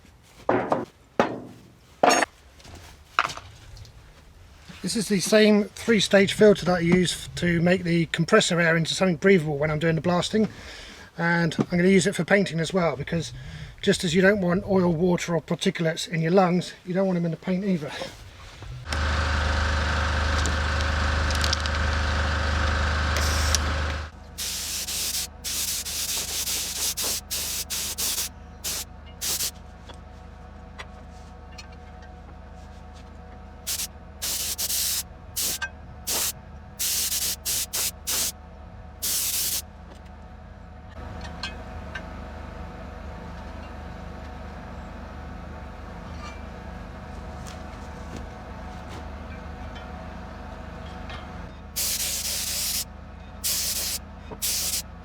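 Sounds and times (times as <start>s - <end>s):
loud machine hum: 18.8s - 29.5s, 33.2s - 45.7s
spray gun hissing bursts: 23.2s - 29.5s, 33.7s - 38.4s, 39.0s - 39.6s, 51.8s - 54.8s.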